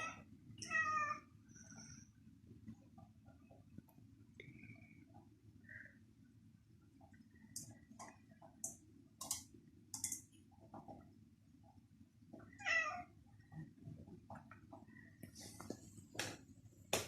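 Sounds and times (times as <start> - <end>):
cat meowing: 12.6 - 13.1.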